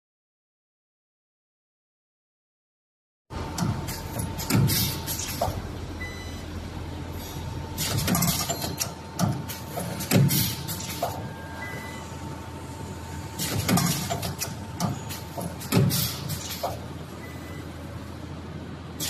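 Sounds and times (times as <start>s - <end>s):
machine hum: 3.3s - 19.0s
machine clunks: 3.5s - 5.6s, 7.8s - 11.3s, 13.4s - 16.8s.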